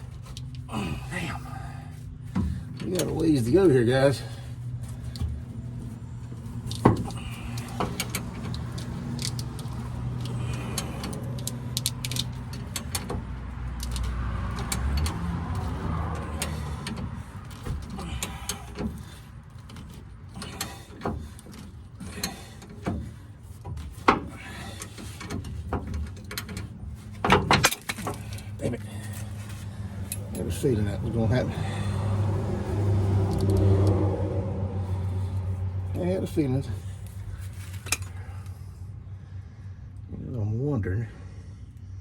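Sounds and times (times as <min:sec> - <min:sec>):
metal clinks and clanks: 0:00.0 - 0:32.0, 0:35.0 - 0:38.5
ratchet clicks: 0:06.6 - 0:23.0.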